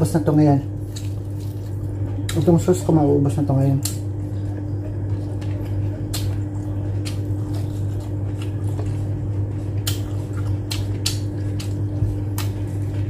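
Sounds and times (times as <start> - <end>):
steady low hum: 0.0 - 13.0
wet chewing and lip-smacking: 0.8 - 2.4, 4.9 - 13.0.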